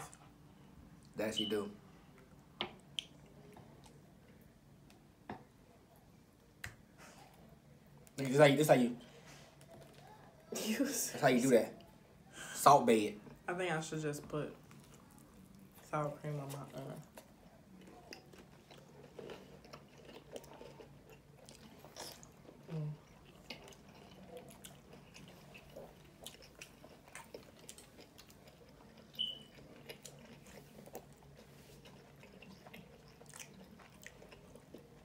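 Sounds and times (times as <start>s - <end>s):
chewing and biting food: 17.0s - 35.0s.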